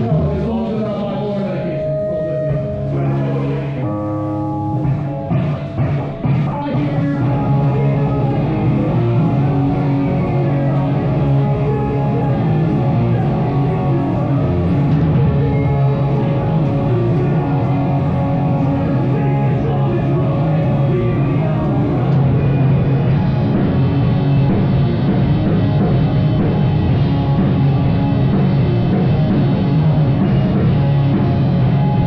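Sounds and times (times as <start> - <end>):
bass guitar: 0.0 - 32.0
guitars: 0.0 - 32.0
drum kit: 4.6 - 32.0.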